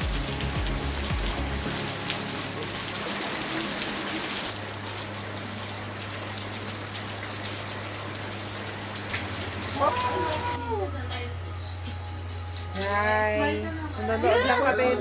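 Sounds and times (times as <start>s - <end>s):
heavy rain falling: 0.0s - 10.6s.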